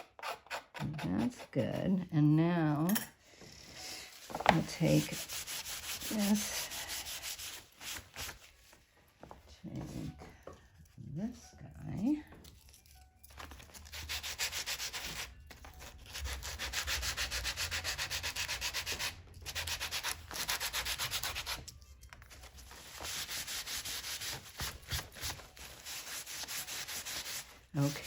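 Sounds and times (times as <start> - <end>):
sanding strokes on parchment: 4.1 - 8.4, 16.0 - 21.6, 22.6 - 28.0.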